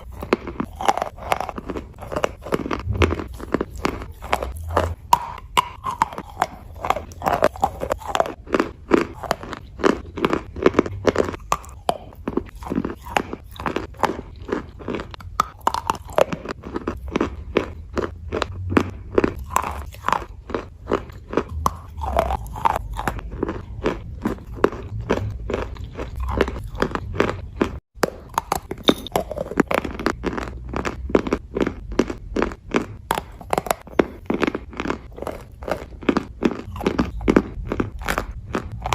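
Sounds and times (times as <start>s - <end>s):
person chewing chalk: 0.0s - 38.9s.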